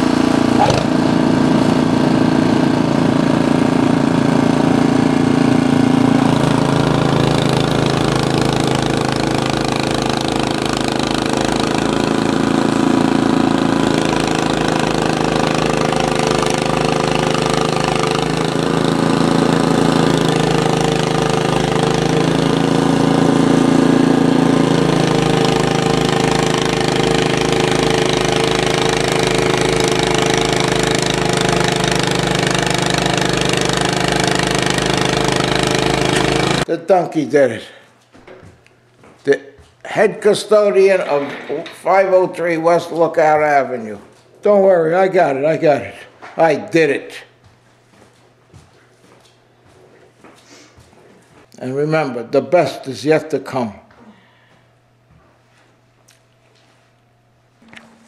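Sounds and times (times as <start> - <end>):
snowblower engine chugging: 0.0 - 36.7.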